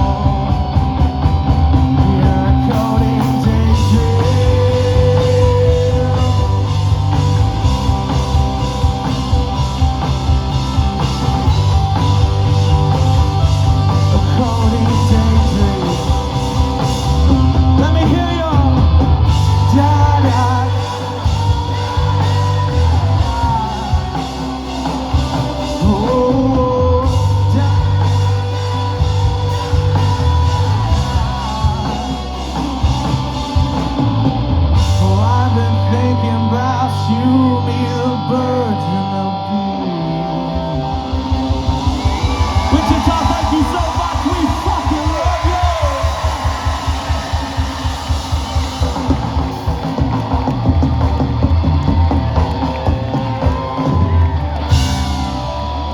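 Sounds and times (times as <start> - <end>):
live rock band playing: 0.0 - 55.9
person singing: 1.7 - 7.4, 13.0 - 50.0.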